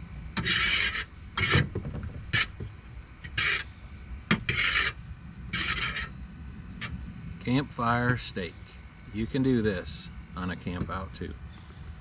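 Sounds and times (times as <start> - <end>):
crickets chirring: 0.0 - 12.0
rasping scrapes: 0.4 - 3.7, 4.3 - 6.2.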